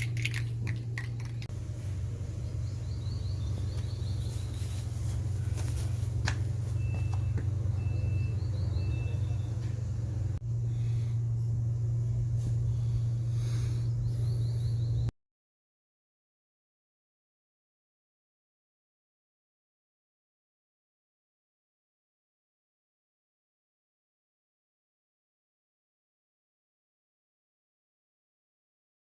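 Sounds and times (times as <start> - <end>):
birds chirping: 0.0 - 15.1
engine idling: 0.0 - 15.1.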